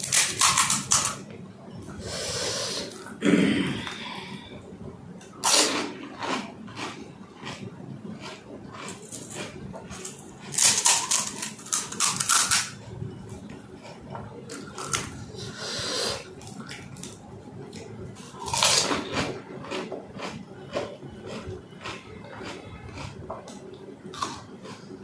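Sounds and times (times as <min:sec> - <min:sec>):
crisp crunching of food: 0:05.4 - 0:15.2, 0:16.4 - 0:25.0
wet chewing: 0:05.5 - 0:07.6, 0:08.2 - 0:12.4.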